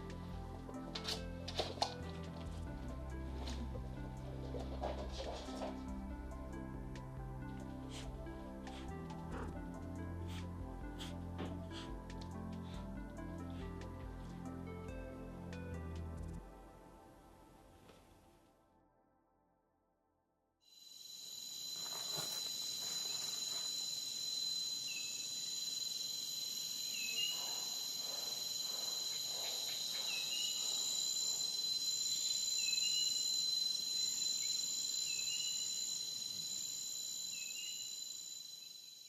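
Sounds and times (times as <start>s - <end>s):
shrill insect chorus: 20.7s - 39.0s.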